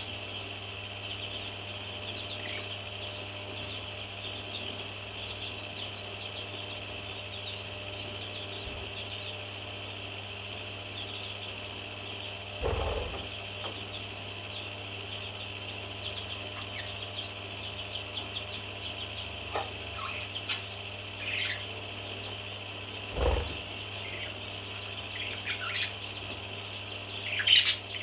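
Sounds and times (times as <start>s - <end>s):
baby parrots chirping: 12.6s - 13.3s, 15.2s - 22.4s, 23.1s - 28.0s.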